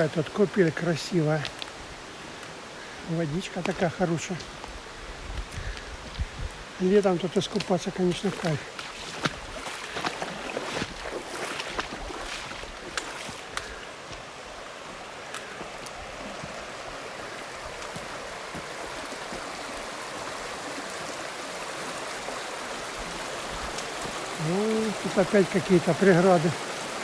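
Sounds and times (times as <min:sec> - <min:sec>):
stream flowing over rocks: 0:06.6 - 0:27.0.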